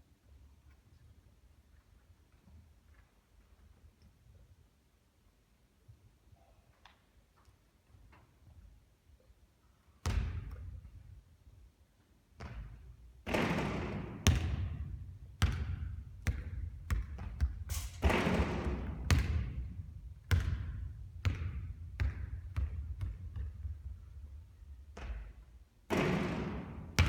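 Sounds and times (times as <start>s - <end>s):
basketball bouncing on hard court: 10.0s - 10.9s, 12.4s - 27.0s.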